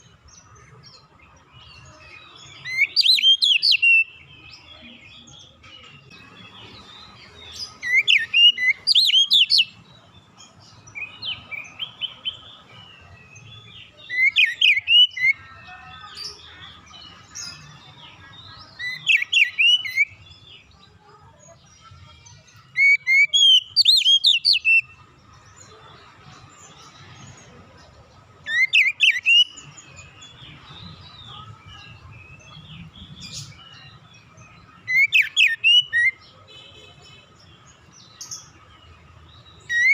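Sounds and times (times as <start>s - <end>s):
bird singing whistled phrases: 2.6s - 4.2s, 7.8s - 9.7s, 14.1s - 15.4s, 18.8s - 20.2s, 22.8s - 24.9s, 28.5s - 29.7s, 34.9s - 36.2s.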